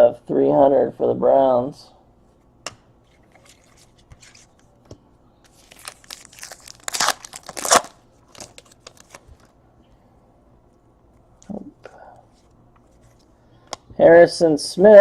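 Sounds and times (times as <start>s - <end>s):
foil wrapper crinkling and tearing: 5.5s - 9.5s.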